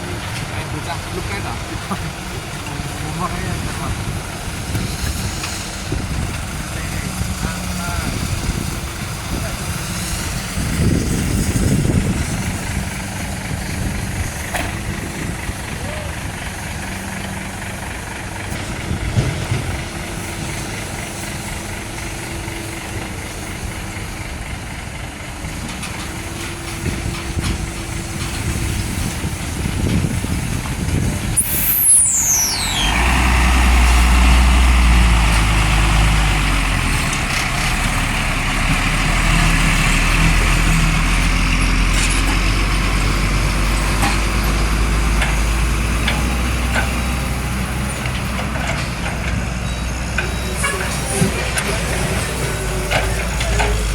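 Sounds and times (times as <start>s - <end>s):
diesel truck engines running: 0.0s - 53.9s
hiss: 26.2s - 40.6s
high-pitched falling sound: 31.4s - 34.6s.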